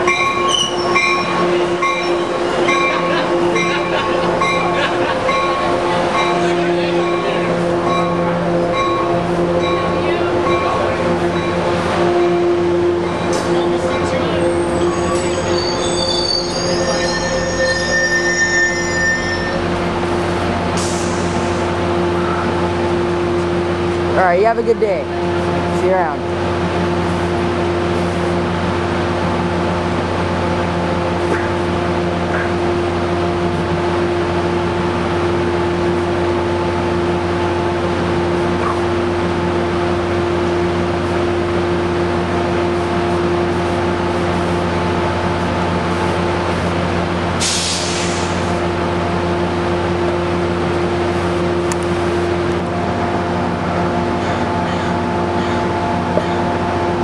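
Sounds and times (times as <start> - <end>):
diesel locomotive idling: 0.0 - 57.0
air hissing: 47.4 - 48.5.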